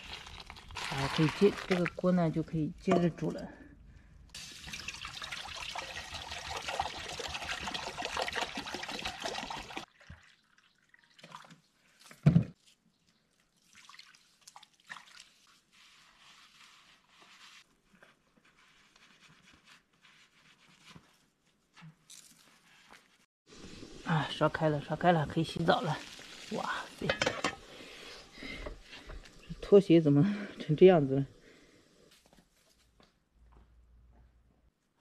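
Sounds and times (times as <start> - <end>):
water pouring: 0.0 - 2.0, 4.3 - 17.6, 23.5 - 29.8.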